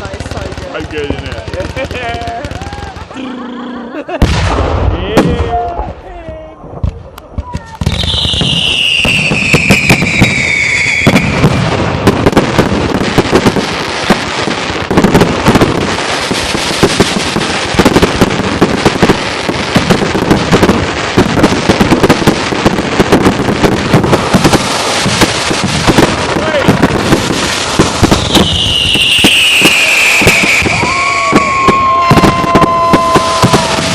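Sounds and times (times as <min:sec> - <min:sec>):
firework bangs: 0:00.0 - 0:03.2, 0:04.0 - 0:33.9
fireworks crackling and popping: 0:00.0 - 0:03.2, 0:03.9 - 0:33.9
firework whistle falling in pitch: 0:08.0 - 0:11.4, 0:28.2 - 0:33.9.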